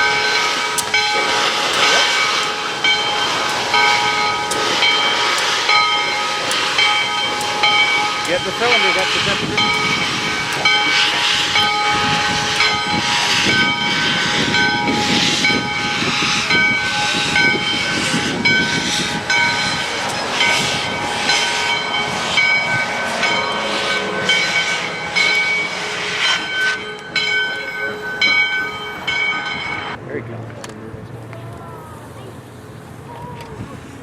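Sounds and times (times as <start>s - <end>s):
steam locomotive hissing steam: 0.0s - 30.0s.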